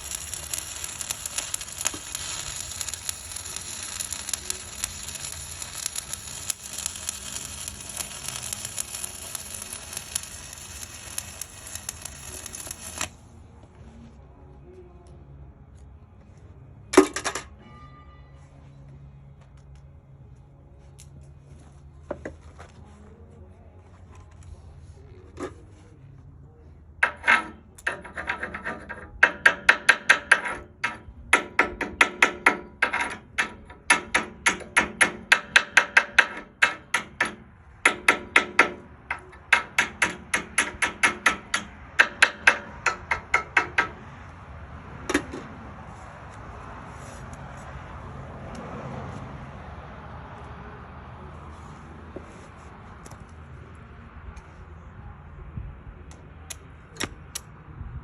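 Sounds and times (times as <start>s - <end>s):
hammer striking steel: 0.0s - 13.1s, 27.0s - 44.1s.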